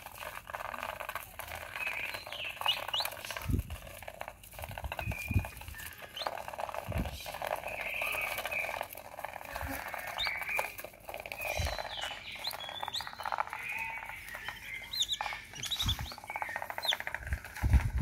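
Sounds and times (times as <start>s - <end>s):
ducks pecking at pellets: 0.0s - 18.0s
duck whistled peep: 2.0s - 3.2s, 11.4s - 17.0s.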